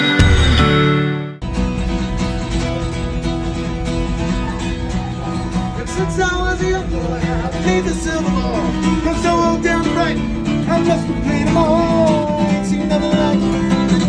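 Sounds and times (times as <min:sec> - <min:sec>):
strummed acoustic guitar: 0:00.0 - 0:14.0
person singing: 0:04.4 - 0:14.0.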